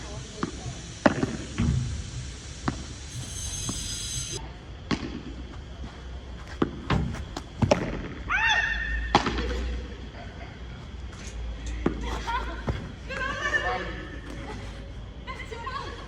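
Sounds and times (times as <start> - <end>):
ball hitting rackets and court: 6.5 - 8.2.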